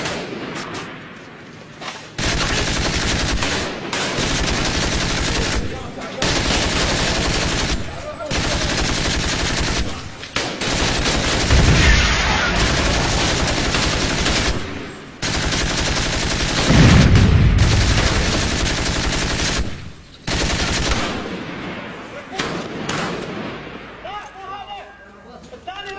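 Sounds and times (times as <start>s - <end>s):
automatic gunfire bursts: 2.2s - 21.5s
heavy deep blasts: 5.2s - 24.1s.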